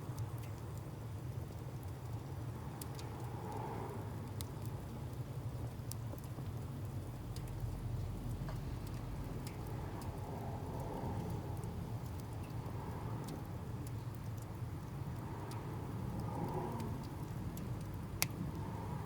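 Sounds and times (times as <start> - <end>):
wood fire crackling: 4.2 - 19.0.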